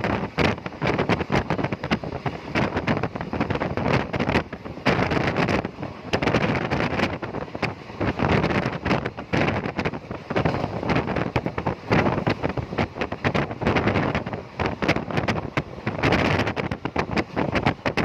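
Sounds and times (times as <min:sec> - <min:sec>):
vehicle rumble: 0:00.0 - 0:18.0
wind buffeting microphone: 0:00.0 - 0:18.0.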